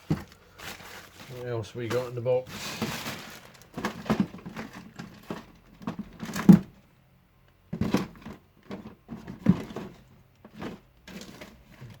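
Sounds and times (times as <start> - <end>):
packaging rustling: 0.0 - 6.5.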